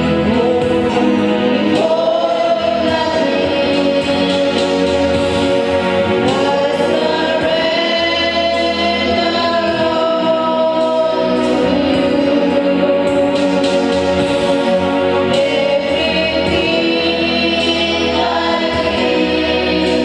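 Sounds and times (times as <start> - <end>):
group singing gospel song: 0.0 - 20.0.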